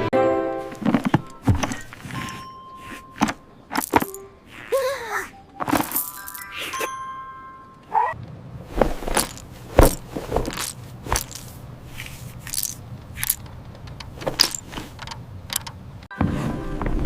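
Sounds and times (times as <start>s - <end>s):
sharp clicks and light clatters: 12.5s - 16.1s.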